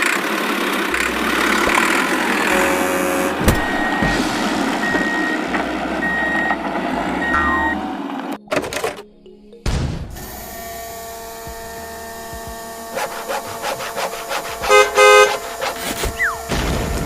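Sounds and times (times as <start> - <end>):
steady hum: 0.0 - 8.2, 10.2 - 17.0
vehicle horn honking: 0.9 - 8.0, 10.3 - 16.5.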